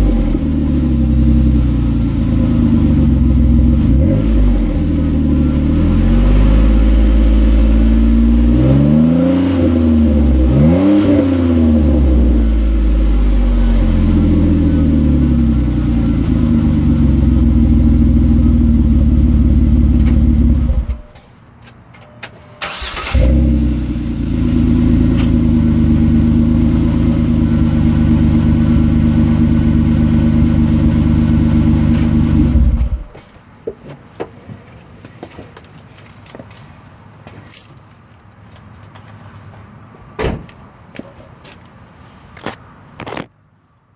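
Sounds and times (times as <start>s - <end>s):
car engine revving and idling: 0.0s - 21.1s, 22.8s - 33.2s.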